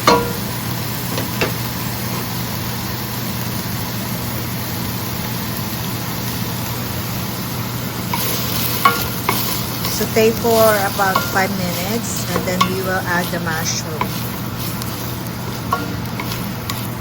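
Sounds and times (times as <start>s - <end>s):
vegetables sizzling in a frying pan: 0.0s - 17.0s
utensil tapping: 8.1s - 16.9s.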